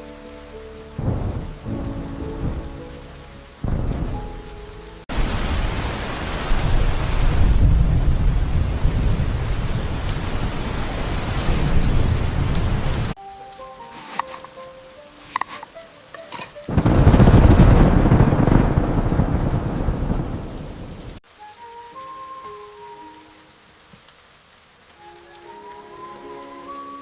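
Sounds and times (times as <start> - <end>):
soft music: 0.0 - 5.1, 13.2 - 17.2, 21.2 - 27.0
heavy rain: 0.0 - 27.0
deep rolling thunder: 1.0 - 3.0, 3.6 - 13.2, 16.7 - 21.2.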